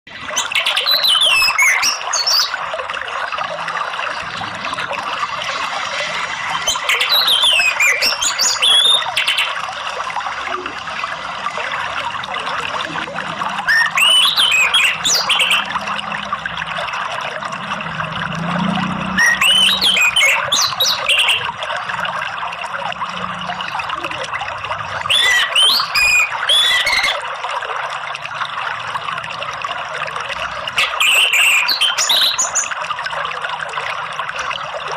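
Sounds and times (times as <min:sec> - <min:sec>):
flowing water rushing: 0:00.1 - 0:34.9
thrush singing whistled phrases: 0:00.4 - 0:02.6, 0:06.5 - 0:09.6, 0:13.6 - 0:15.8, 0:19.2 - 0:21.5, 0:25.1 - 0:27.2, 0:30.8 - 0:32.8.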